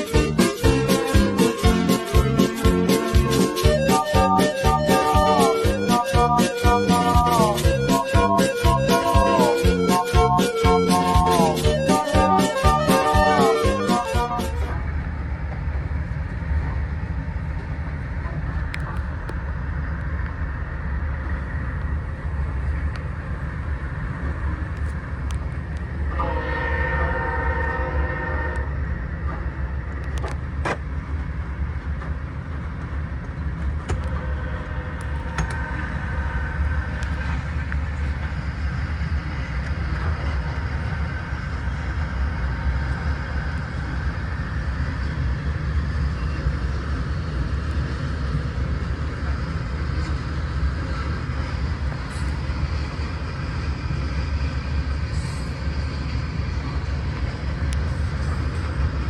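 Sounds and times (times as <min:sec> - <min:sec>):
train wheels clicking: 0:00.0 - 0:14.8, 0:28.6 - 0:45.4
train rumbling past: 0:00.0 - 0:59.0.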